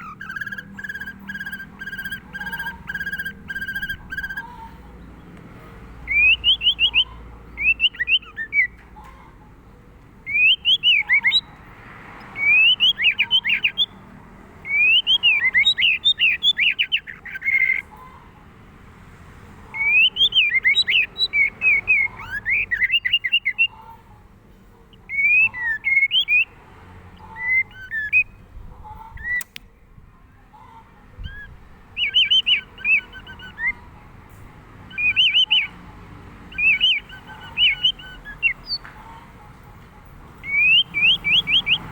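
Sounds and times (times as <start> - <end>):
bird singing whistled phrases: 6.1 - 8.8, 10.3 - 11.5, 14.7 - 17.8, 19.8 - 23.7, 31.3 - 33.8, 34.9 - 35.8, 36.5 - 38.8, 40.4 - 41.9.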